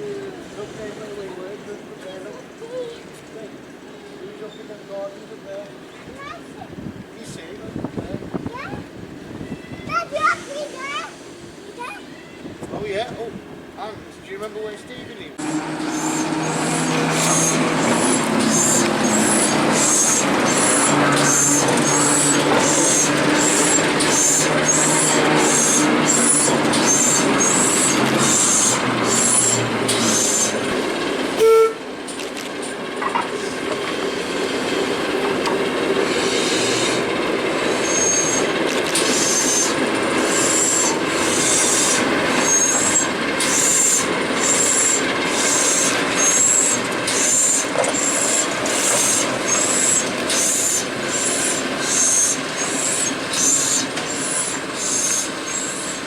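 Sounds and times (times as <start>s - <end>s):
train running rhythmically: 15.3s - 56.0s
train whistle toot: 31.4s - 31.9s.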